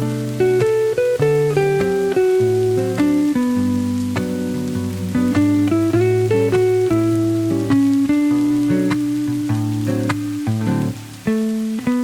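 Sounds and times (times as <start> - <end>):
faint rain: 0.0 - 12.0
soft jazz guitar: 0.0 - 12.0.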